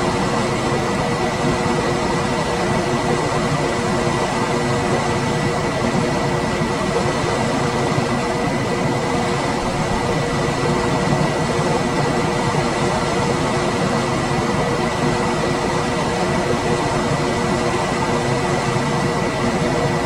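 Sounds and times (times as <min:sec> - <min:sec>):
air conditioner fan running: 0:00.0 - 0:20.0.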